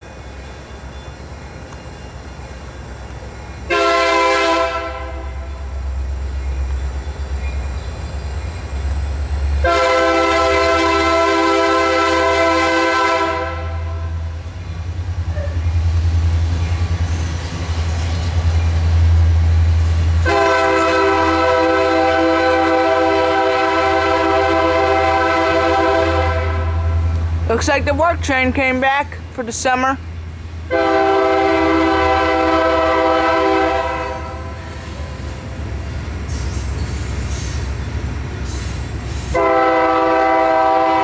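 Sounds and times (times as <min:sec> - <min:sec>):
locomotive air horn blasts: 0:03.7 - 0:05.7, 0:09.6 - 0:14.3, 0:20.2 - 0:27.2, 0:30.7 - 0:35.1, 0:39.3 - 0:41.0
low engine rumble: 0:13.4 - 0:41.0.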